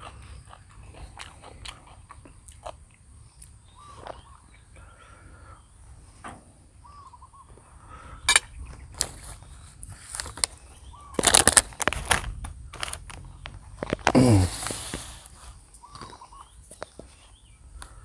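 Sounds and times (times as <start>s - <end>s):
faint bird chirps: 3.2s - 6.0s, 6.7s - 9.8s, 10.5s - 11.2s, 15.7s - 18.0s
mouth eating noodles: 14.0s - 15.3s.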